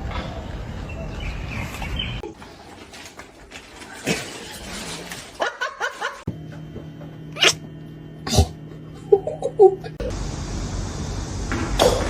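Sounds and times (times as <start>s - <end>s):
pet's short calls: 7.4s - 7.6s.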